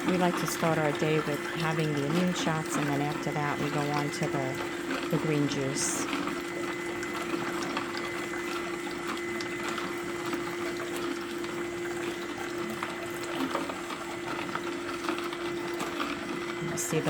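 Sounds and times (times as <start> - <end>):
juicer motor humming: 0.0 - 17.0.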